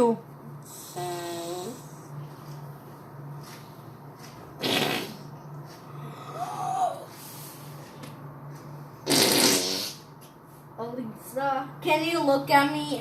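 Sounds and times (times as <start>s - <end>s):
fake fart noises: 4.6s - 5.3s, 9.0s - 10.1s.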